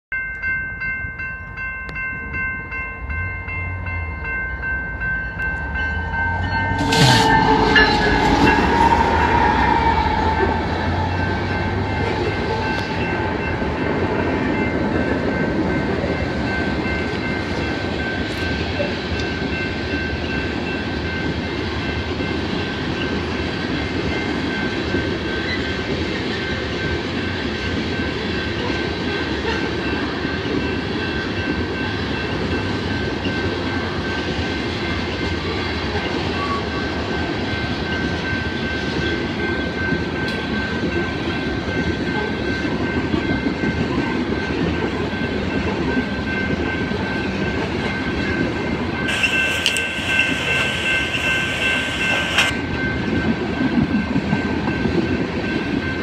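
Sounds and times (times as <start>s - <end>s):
level-crossing bell ringing: 0.1s - 22.8s, 44.9s - 53.1s
diesel locomotives passing: 1.4s - 56.0s.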